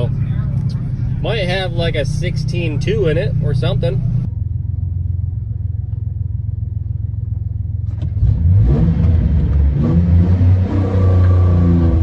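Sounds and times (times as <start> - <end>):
vehicle engine revving: 7.8 - 12.0.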